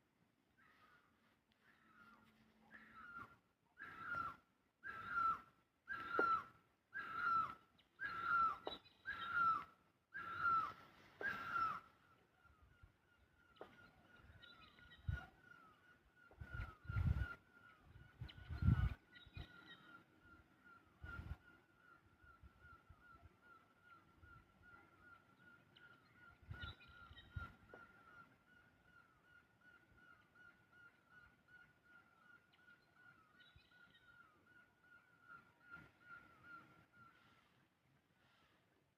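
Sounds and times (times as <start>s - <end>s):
faint bird calling: 0.5s - 38.9s
bird giving harsh calls: 2.8s - 12.1s.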